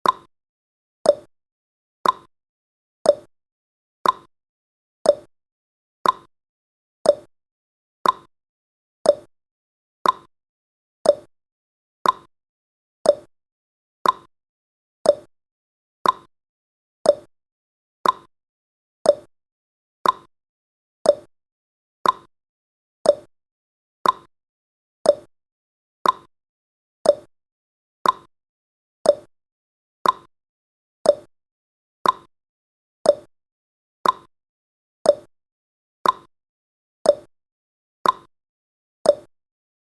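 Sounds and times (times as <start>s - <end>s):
timer ticking: 0.0s - 0.3s, 1.1s - 1.3s, 2.0s - 2.3s, 3.1s - 3.3s, 4.0s - 4.3s, 5.1s - 5.3s, 6.0s - 6.3s, 7.0s - 7.3s, 8.0s - 8.3s, 9.0s - 9.3s, 10.0s - 10.3s, 11.0s - 11.3s, 12.0s - 12.3s, 13.0s - 13.3s, 14.0s - 14.3s, 15.0s - 15.3s, 16.0s - 16.3s, 17.0s - 17.3s, 18.0s - 18.3s, 19.0s - 19.3s, 20.0s - 20.3s, 21.0s - 21.3s, 22.0s - 22.3s, 23.0s - 23.3s, 24.0s - 24.3s, 25.0s - 25.3s, 26.0s - 26.3s, 27.0s - 27.3s, 28.0s - 28.3s, 29.0s - 29.3s, 30.0s - 30.3s, 31.0s - 31.3s, 32.0s - 32.3s, 33.0s - 33.3s, 34.0s - 34.3s, 35.1s - 35.3s, 36.0s - 36.3s, 37.1s - 37.3s, 38.0s - 38.3s, 39.1s - 39.3s.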